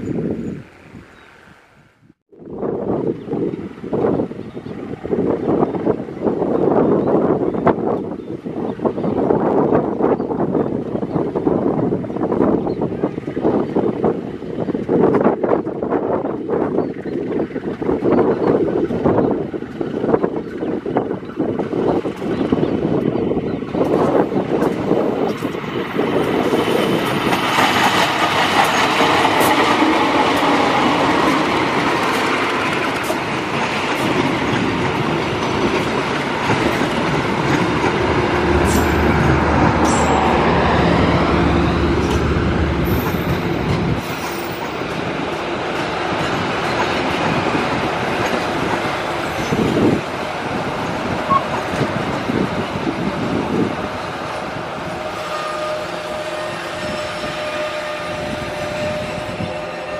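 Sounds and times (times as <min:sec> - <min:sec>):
locomotive engine humming: 0:22.7 - 0:59.9
train wheels clattering over rails: 0:23.7 - 0:53.7.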